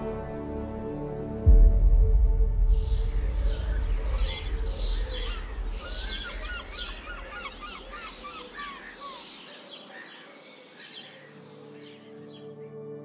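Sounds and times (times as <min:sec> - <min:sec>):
soft ambient music: 0:00.0 - 0:13.0
low rumble: 0:01.4 - 0:07.9
birds chirping: 0:02.5 - 0:12.8.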